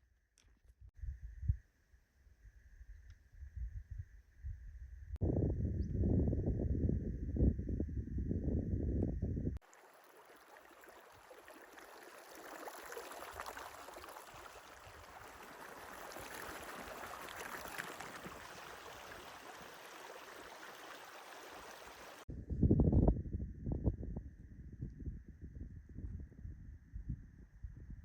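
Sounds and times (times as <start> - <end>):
wind buffeting microphone: 3.4 - 9.6, 22.3 - 28.0
stream water rushing: 9.6 - 22.3.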